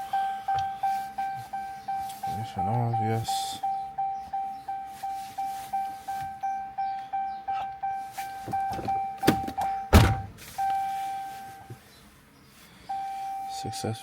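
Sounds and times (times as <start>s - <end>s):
electronic chime beeping: 0.0s - 9.9s, 10.6s - 11.7s, 12.9s - 13.8s
heavy thuds: 8.4s - 10.6s.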